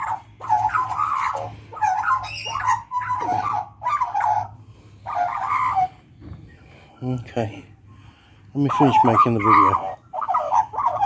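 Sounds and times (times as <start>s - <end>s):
magpie warbling song: 0.0s - 6.0s, 8.6s - 11.0s.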